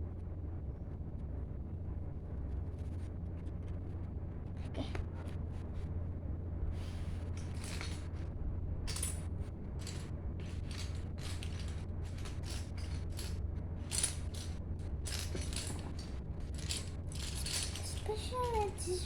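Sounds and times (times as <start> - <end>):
steady low hum: 0.0 - 19.0
plastic pieces clicking and rattling: 7.4 - 8.2, 8.9 - 19.0.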